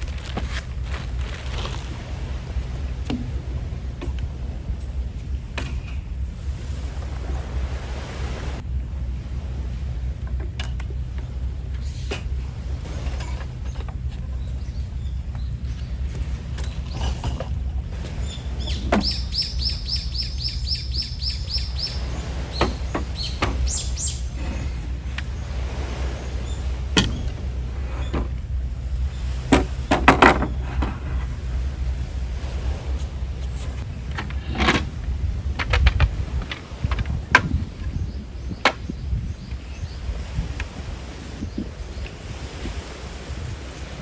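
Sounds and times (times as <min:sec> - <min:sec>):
steady low rumble: 0:00.0 - 0:44.0
sharp clicks and knocks: 0:35.5 - 0:37.6.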